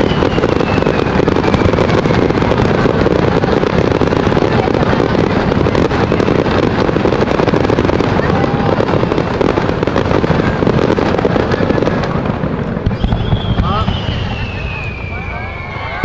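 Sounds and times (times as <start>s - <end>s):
fireworks booming: 0.0s - 16.0s
fireworks crackling: 0.0s - 16.0s.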